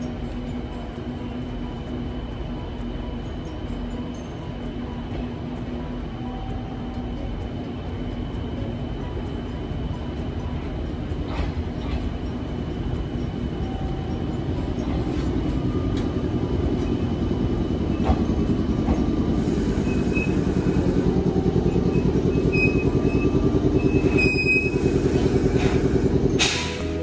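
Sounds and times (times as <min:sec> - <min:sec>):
fast regular pulsing: 0:00.0 - 0:27.0
train rumbling: 0:00.0 - 0:27.0.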